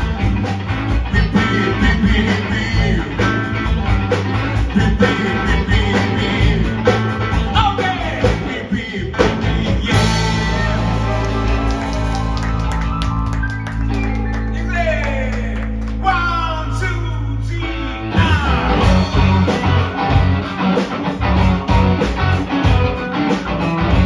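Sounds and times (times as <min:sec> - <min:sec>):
rock band playing: 0:00.0 - 0:16.8, 0:17.7 - 0:24.0
person singing: 0:01.0 - 0:03.8, 0:04.6 - 0:12.0.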